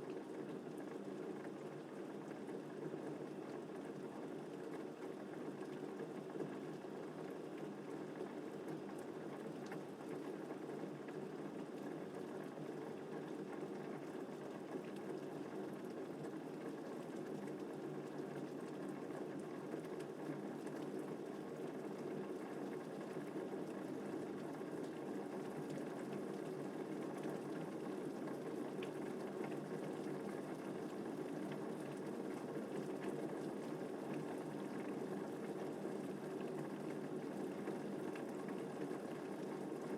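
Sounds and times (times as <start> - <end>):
faint raindrop ticks: 0.1 - 39.9.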